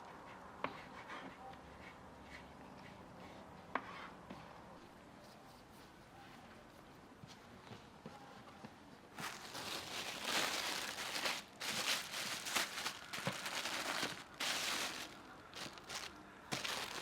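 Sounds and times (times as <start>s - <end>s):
crinkling rustling: 9.1s - 17.0s.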